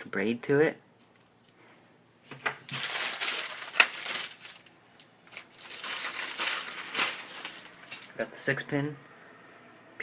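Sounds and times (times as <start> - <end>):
plastic packaging crinkling: 2.3 - 8.2.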